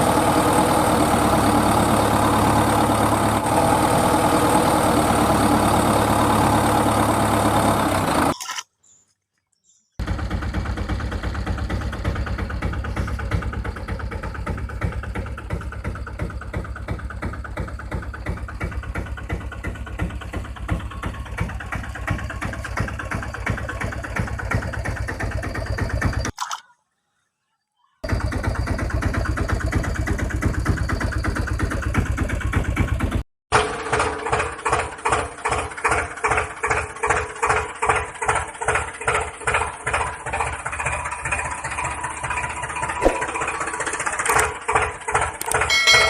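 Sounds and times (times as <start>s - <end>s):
engine idling: 0.0s - 8.4s, 10.0s - 26.3s, 28.0s - 46.0s
low hum: 43.0s - 44.4s.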